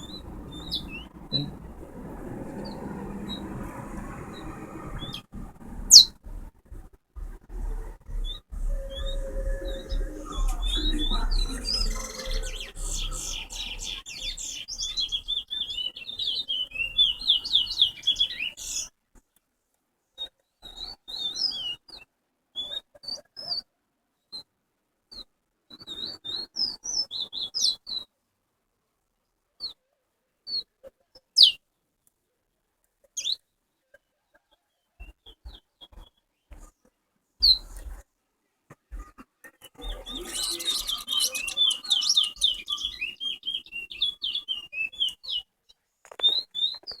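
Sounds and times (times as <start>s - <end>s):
finch chirping: 0.0s - 1.6s, 5.0s - 5.2s, 5.9s - 6.2s, 8.0s - 18.9s, 31.4s - 31.6s, 37.4s - 37.9s, 39.7s - 45.4s
fast warbled notes: 8.0s - 14.0s.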